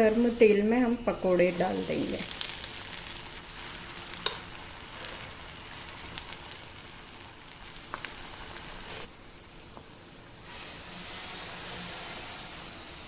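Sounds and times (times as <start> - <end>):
batter sizzling in hot oil: 0.0 - 13.0
oil crackling and popping: 2.0 - 10.0.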